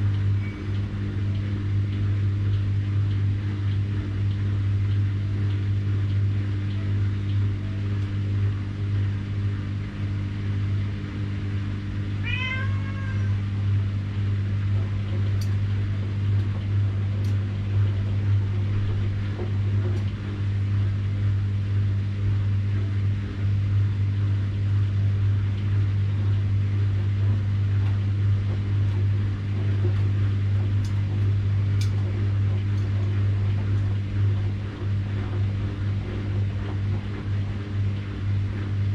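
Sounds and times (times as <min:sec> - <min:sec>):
washing machine humming: 0:00.0 - 0:38.9
cat meowing: 0:12.2 - 0:13.4.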